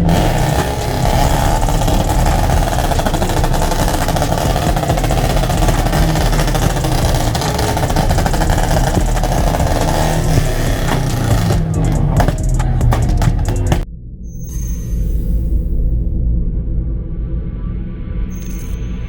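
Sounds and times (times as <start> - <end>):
car engine running: 0.0 - 13.8
road noise: 0.0 - 13.8.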